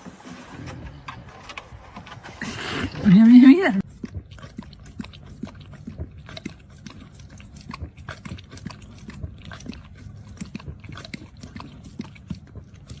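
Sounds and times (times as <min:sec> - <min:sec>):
pet chewing with crunching clicks: 0:00.6 - 0:13.0.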